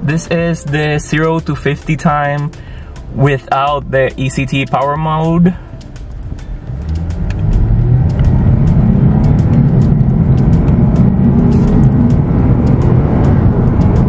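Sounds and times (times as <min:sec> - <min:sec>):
car engine accelerating hard: 0:05.7 - 0:14.0.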